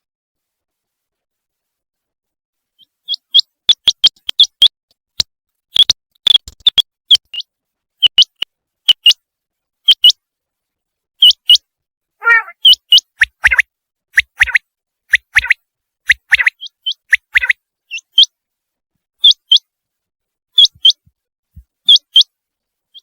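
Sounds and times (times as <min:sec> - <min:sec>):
quail calling: 0:12.2 - 0:13.6, 0:16.2 - 0:18.2.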